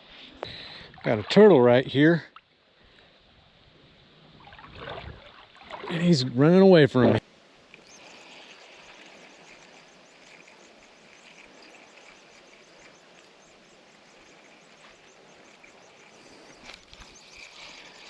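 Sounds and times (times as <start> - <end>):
insects chirping: 0.1 - 18.0
creek water flowing: 4.2 - 18.0.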